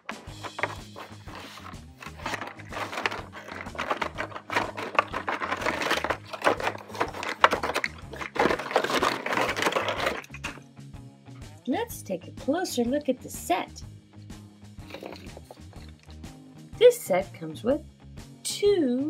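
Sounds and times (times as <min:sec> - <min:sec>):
packaging crinkling: 0:00.0 - 0:10.6, 0:14.9 - 0:15.9.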